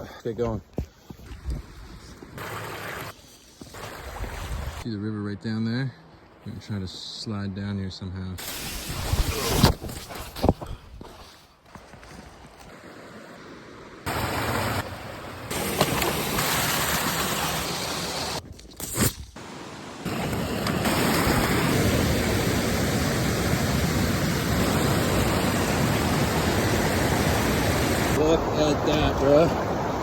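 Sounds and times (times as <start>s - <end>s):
river water rushing: 14.1s - 18.4s, 19.4s - 30.0s.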